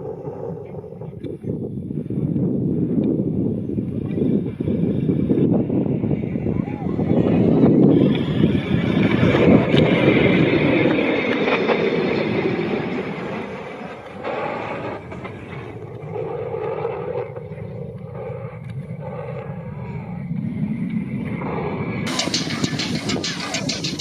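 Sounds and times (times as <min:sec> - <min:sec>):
jet engine rumble: 0:00.0 - 0:24.0.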